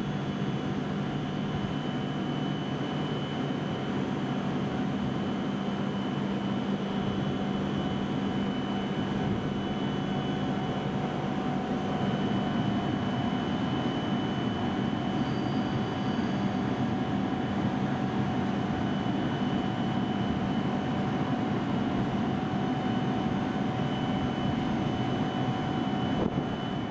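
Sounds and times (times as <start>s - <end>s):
stationary train humming: 7.6s - 26.9s.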